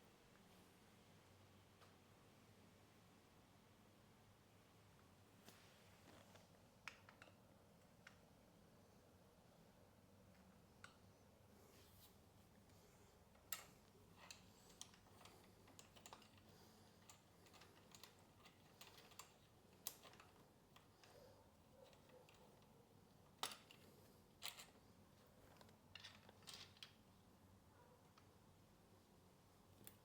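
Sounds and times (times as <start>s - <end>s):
light clicks and taps: 10.3s - 11.1s.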